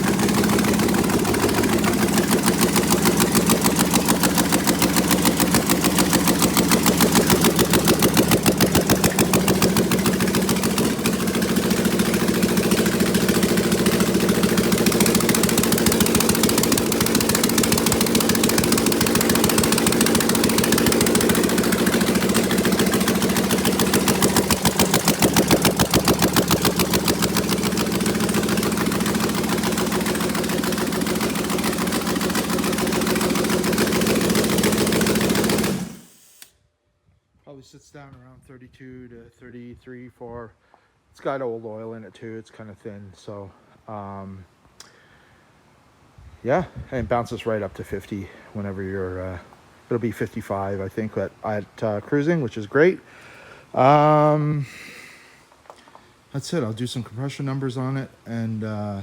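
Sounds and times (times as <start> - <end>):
engine idling loudly: 0.0 - 36.2.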